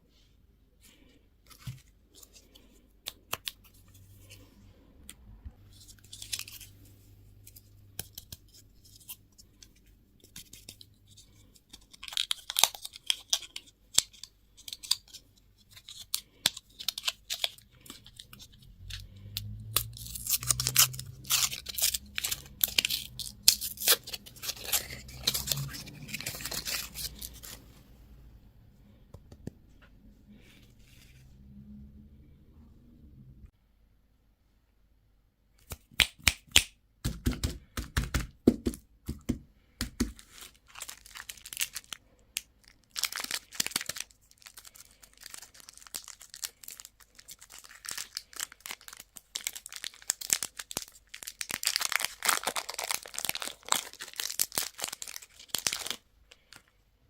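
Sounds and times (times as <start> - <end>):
wrappers crinkling and tearing: 15.8 - 27.6, 40.2 - 56.6.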